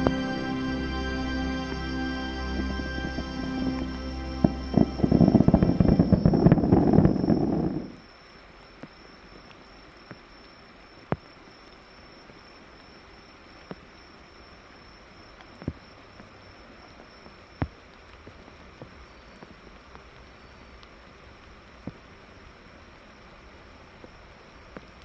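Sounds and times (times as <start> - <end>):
high insect trill: 0.0 - 17.7
fireworks bangs and crackles: 4.4 - 8.0.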